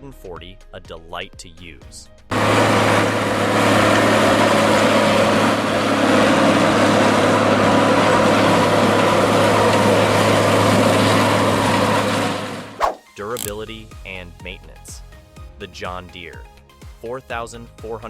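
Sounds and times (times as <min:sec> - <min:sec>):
diesel engine droning steadily: 0:02.3 - 0:12.8.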